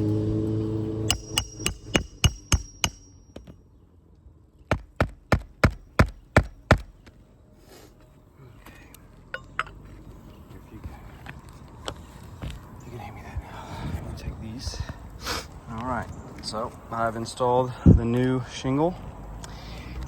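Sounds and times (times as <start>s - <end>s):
hammer driving nails: 1.1s - 3.5s, 4.7s - 7.0s.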